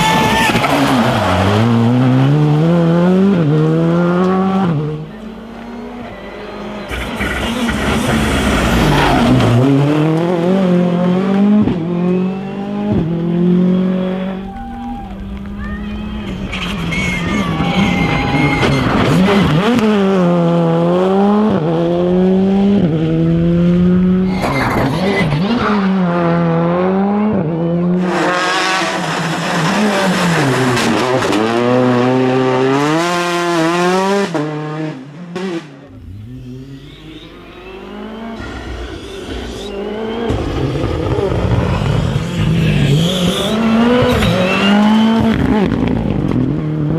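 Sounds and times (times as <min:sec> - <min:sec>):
rally car engine at full throttle: 0:00.0 - 0:46.9
another car engine: 0:00.5 - 0:32.5, 0:35.4 - 0:46.9
tyre squeal: 0:06.8 - 0:09.8, 0:15.6 - 0:19.7, 0:35.9 - 0:45.4.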